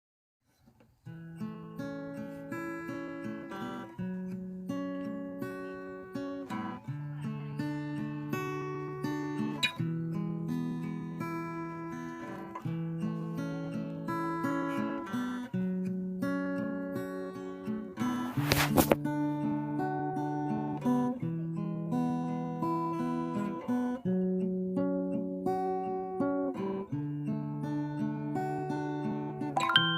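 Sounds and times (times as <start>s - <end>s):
acoustic guitar music: 0.6s - 29.9s
acoustic guitar strumming chords: 21.8s - 29.9s.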